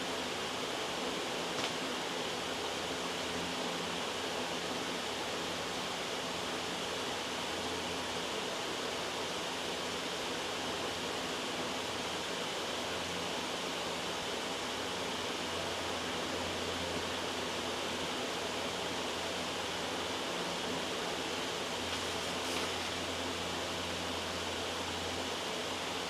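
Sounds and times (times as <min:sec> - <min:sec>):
steady white noise hiss: 0:00.0 - 0:26.0.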